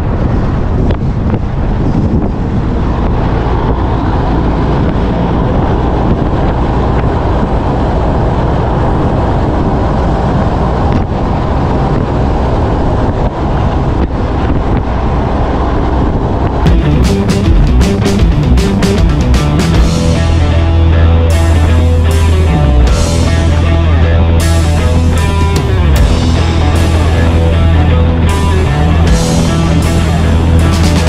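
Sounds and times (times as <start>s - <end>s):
truck diesel engine: 0.0s - 31.0s
wind rushing over microphone: 0.0s - 31.0s
tyre noise: 16.4s - 31.0s.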